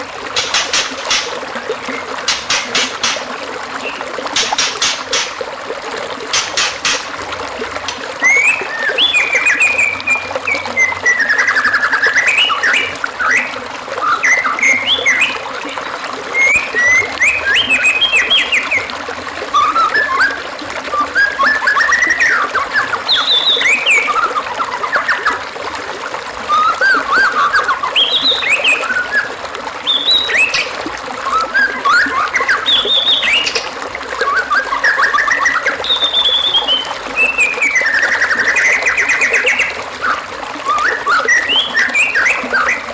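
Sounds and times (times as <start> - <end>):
songbird whistles and chatter: 8.2 - 15.4, 16.4 - 18.9, 19.6 - 25.4, 26.5 - 33.6, 34.2 - 42.9.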